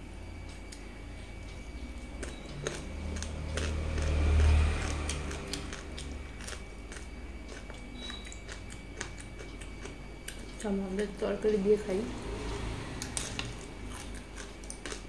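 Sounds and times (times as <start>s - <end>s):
person biting and chewing: 2.2s - 10.5s, 13.1s - 15.0s.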